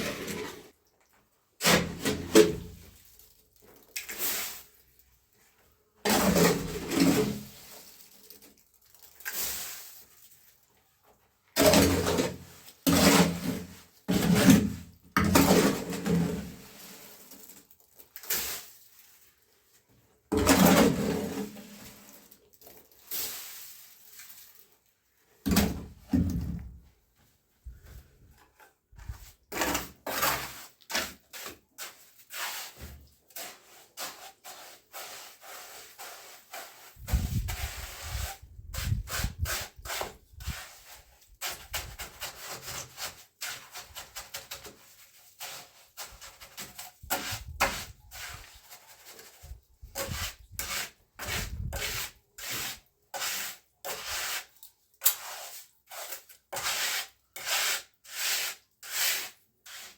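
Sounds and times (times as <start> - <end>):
hand tool scraping rough surface: 0.0 - 0.7, 1.6 - 2.8, 6.0 - 8.0, 11.6 - 17.5, 20.3 - 22.4, 28.4 - 59.9.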